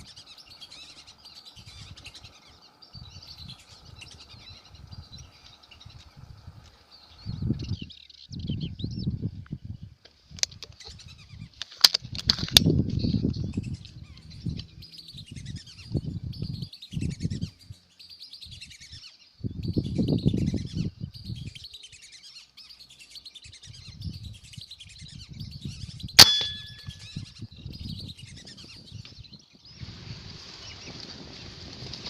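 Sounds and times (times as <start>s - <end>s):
birds chirping and whistling: 0.0s - 9.3s, 10.7s - 11.6s, 12.7s - 29.8s
brief metallic ring: 26.2s - 27.2s
sharp crack: 26.2s - 27.2s.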